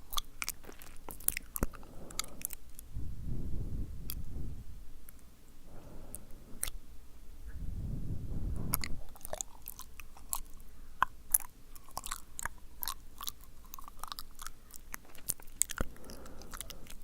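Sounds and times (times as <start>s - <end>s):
man's wet mouth clicks and smacks: 8.7s - 17.0s.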